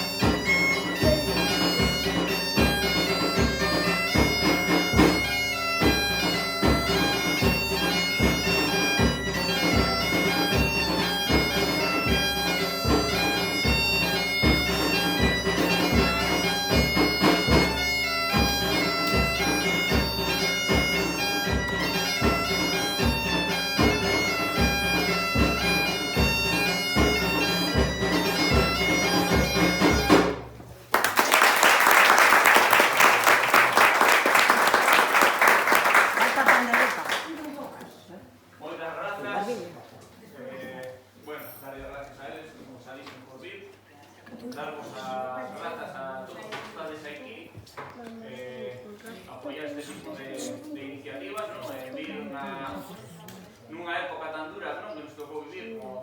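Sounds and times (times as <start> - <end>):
bagpipe playing a tune: 0.0 - 30.5
drum beat: 0.0 - 30.6
applause: 30.9 - 37.6.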